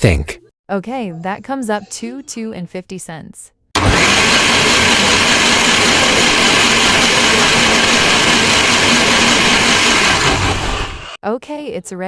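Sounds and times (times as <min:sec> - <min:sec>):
blender running at high speed: 0:03.8 - 0:11.2.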